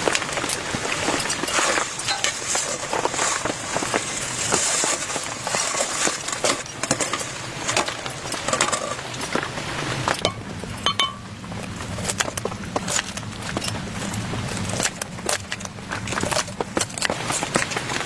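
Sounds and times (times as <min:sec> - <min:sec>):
heavy rain on a tent: 0:00.0 - 0:18.0.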